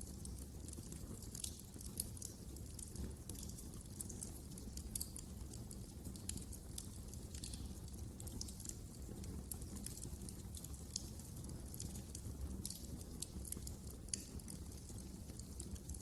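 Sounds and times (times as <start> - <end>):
low steady background noise: 0.0 - 16.0
wood fire crackling: 0.0 - 16.0.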